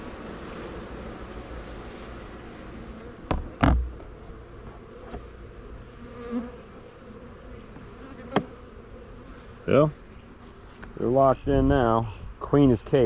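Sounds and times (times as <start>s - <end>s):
honey bees buzzing: 0.0s - 13.0s
sharp knocks: 3.3s - 4.0s.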